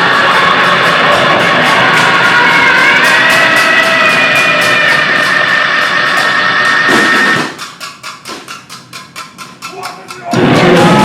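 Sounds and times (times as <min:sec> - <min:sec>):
distorted noise band playing: 0:00.0 - 0:07.9, 0:10.2 - 0:11.0
high feedback whines: 0:00.0 - 0:09.5, 0:10.1 - 0:11.0
rapid clattering hits: 0:00.0 - 0:11.0.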